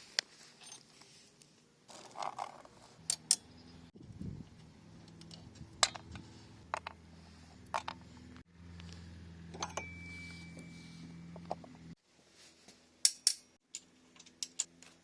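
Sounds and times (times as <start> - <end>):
metal parts clicking and clinking: 1.9 - 3.6, 5.0 - 7.0, 7.6 - 8.1, 9.5 - 10.6, 13.0 - 15.0.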